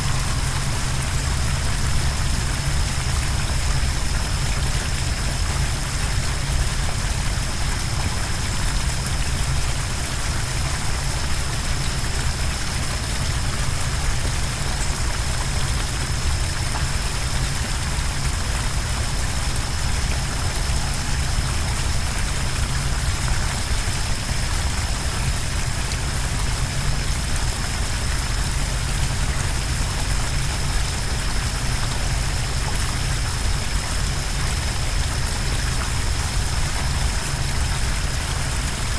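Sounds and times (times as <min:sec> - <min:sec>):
thin high whine: 0:00.0 - 0:05.0
waterfall roaring: 0:00.0 - 0:15.3.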